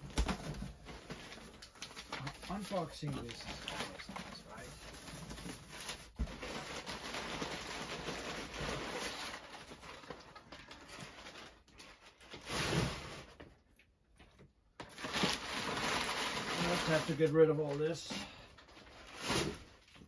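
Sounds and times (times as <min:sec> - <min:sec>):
packing material rustling: 0:00.0 - 0:13.4, 0:14.8 - 0:20.0.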